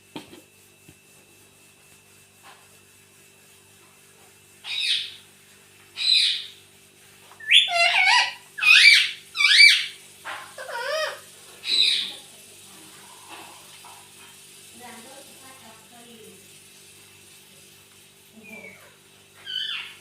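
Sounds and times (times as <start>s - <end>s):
parakeet shrill calls: 4.6s - 5.2s, 6.0s - 6.6s, 7.4s - 12.2s, 19.4s - 20.0s.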